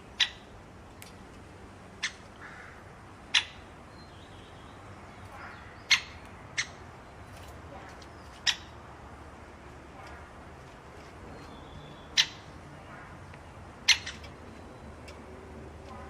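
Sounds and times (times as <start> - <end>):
bird giving sharp calls: 2.0 - 3.7, 5.2 - 6.9, 8.1 - 8.8, 11.6 - 13.2, 13.8 - 14.4.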